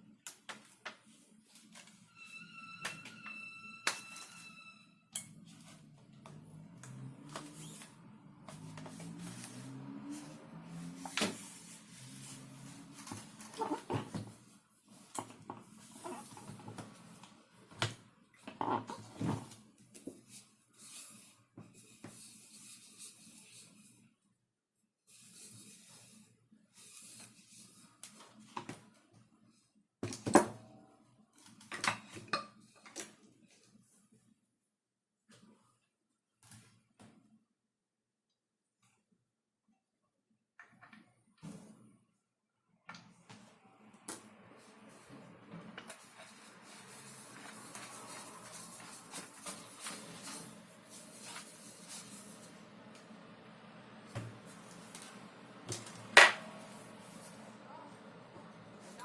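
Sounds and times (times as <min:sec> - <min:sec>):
plastic parts sliding and rubbing: 0:06.9 - 0:17.7, 0:44.6 - 0:52.7.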